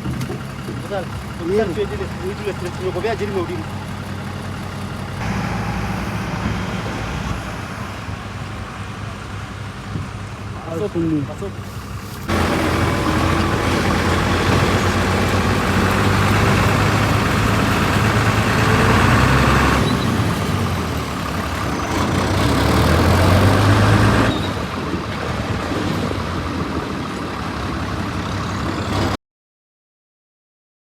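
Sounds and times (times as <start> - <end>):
vehicle engine humming: 0.0 - 29.2
heavy rushing noise: 5.0 - 10.6, 11.7 - 28.2.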